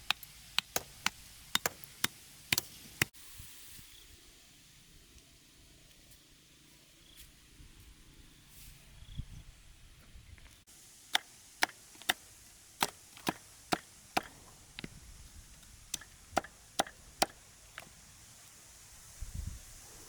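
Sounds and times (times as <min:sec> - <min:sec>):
axe chopping wood: 0:00.1 - 0:03.1, 0:11.1 - 0:15.0, 0:15.9 - 0:17.9.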